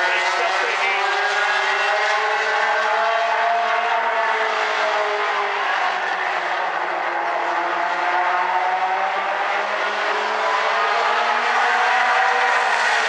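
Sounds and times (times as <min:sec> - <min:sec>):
race car engines running hard: 0:00.0 - 0:13.0.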